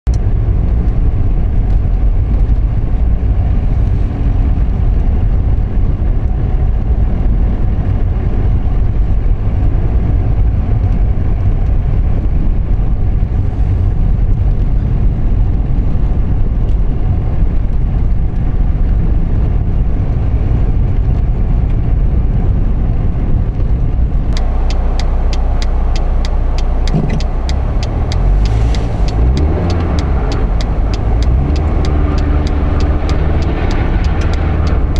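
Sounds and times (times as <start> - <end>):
car road and tyre noise: 0.0 - 34.9
rapid regular ticking: 24.4 - 34.9.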